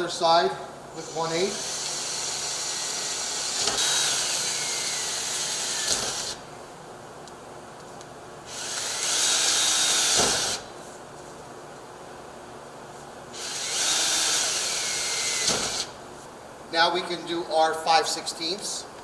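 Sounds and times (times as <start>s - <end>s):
power drill boring holes: 1.0s - 6.4s, 8.5s - 10.7s, 13.4s - 16.0s.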